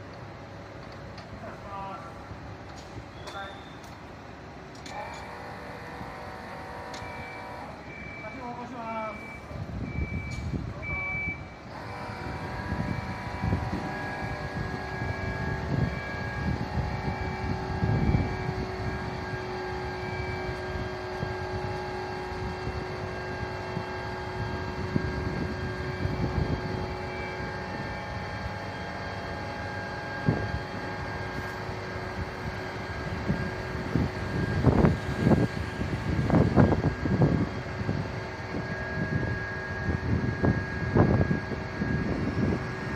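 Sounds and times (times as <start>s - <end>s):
fire truck engine whine: 0.0s - 42.9s
reversing beeper: 3.1s - 3.9s, 6.6s - 31.5s
wind on microphone: 9.5s - 28.6s, 30.1s - 42.9s.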